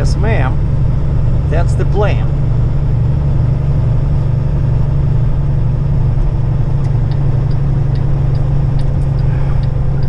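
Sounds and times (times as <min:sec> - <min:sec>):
truck diesel engine droning: 0:00.0 - 0:10.0
light ticking: 0:06.8 - 0:10.0.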